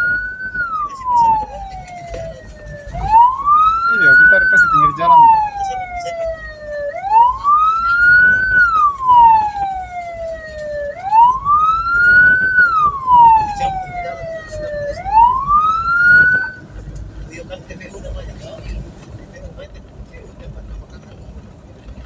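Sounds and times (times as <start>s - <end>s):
vehicle siren wailing: 0.0s - 16.9s
road and engine rumble: 0.0s - 22.0s.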